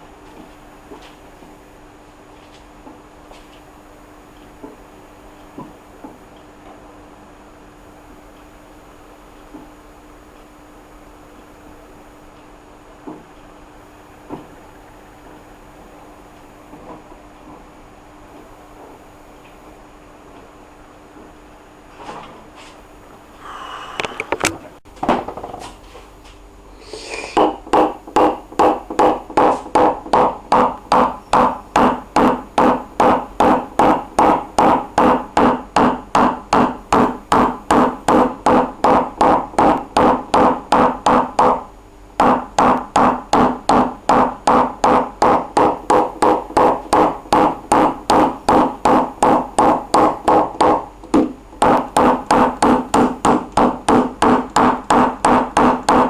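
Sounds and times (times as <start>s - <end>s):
hammer tapping on sheet metal: 27.4s - 56.0s.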